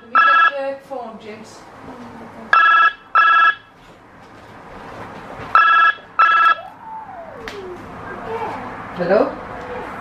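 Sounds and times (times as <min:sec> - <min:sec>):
telephone double ring: 0:00.2 - 0:00.5, 0:02.6 - 0:03.6, 0:05.6 - 0:06.6.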